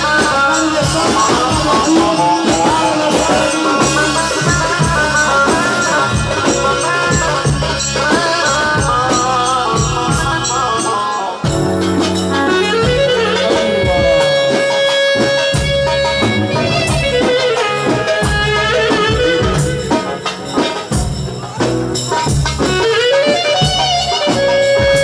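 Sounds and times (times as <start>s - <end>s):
steady drum beat: 0.0s - 25.0s
held melody note: 11.4s - 25.0s.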